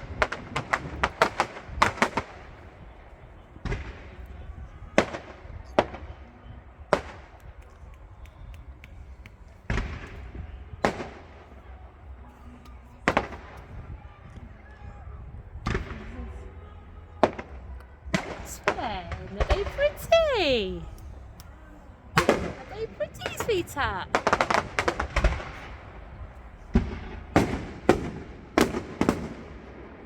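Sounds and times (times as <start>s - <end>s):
fireworks bangs and cracks: 0.0s - 2.6s, 18.2s - 20.8s, 22.2s - 30.0s.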